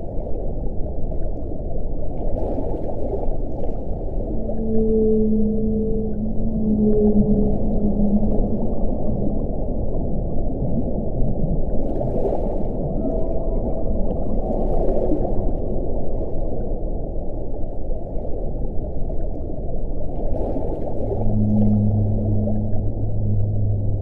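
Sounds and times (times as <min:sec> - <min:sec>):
wind blowing: 0:03.8 - 0:11.7, 0:21.0 - 0:24.0.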